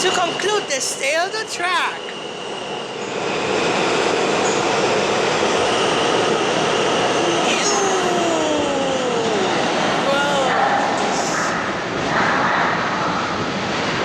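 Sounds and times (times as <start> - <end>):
subway train wheels on track: 0.0 - 14.0
whining tones falling in pitch: 5.6 - 11.3.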